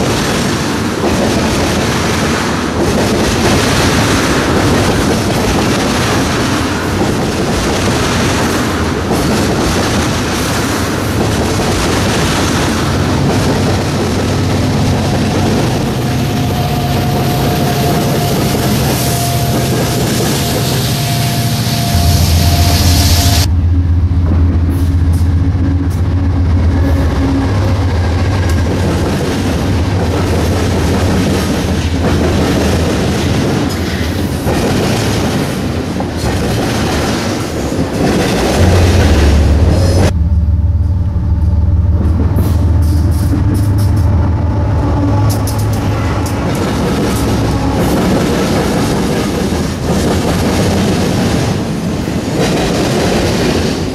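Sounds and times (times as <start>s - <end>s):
freight train wheels clattering: 0.0s - 53.9s
steady low drone: 14.0s - 30.4s, 38.6s - 49.4s.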